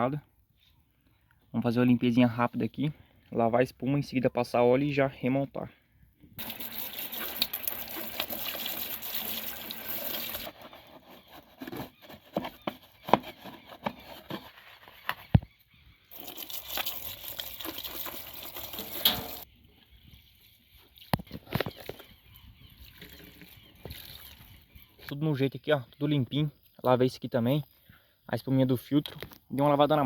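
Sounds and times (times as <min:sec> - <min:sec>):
water running and splashing: 0:06.4 - 0:10.8, 0:16.1 - 0:19.5.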